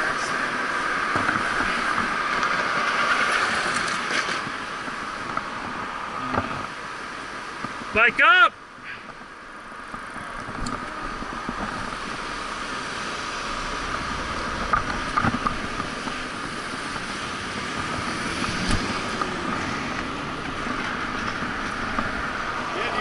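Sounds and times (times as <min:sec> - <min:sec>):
bicycle road noise: 0:00.0 - 0:23.0
wind rushing over microphone: 0:09.0 - 0:23.0.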